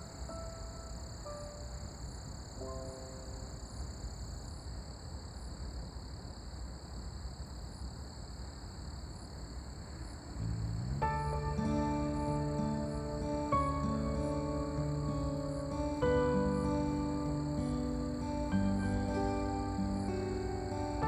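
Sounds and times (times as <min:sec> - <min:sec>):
calm instrumental music: 0:00.0 - 0:01.8, 0:10.4 - 0:21.0
faint high-pitched tones: 0:00.0 - 0:04.8, 0:10.2 - 0:21.0
low outdoor rumble: 0:10.0 - 0:21.0.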